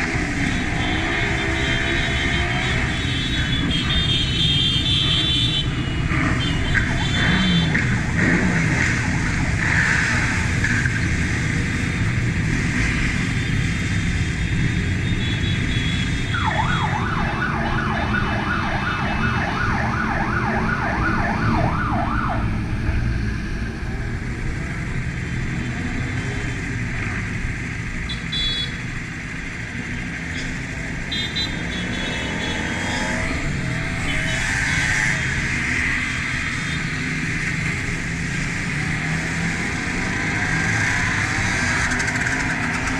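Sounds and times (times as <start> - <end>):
wind: 0.0 - 42.9
siren yelping: 16.3 - 22.6
motorcycle engine: 30.6 - 42.9.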